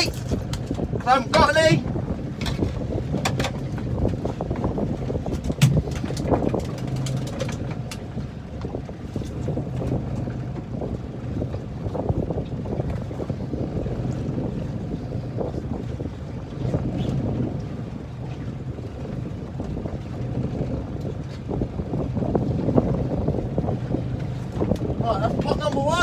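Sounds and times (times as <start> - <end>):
boat engine running: 0.0 - 26.0
wind buffeting microphone: 0.0 - 26.0.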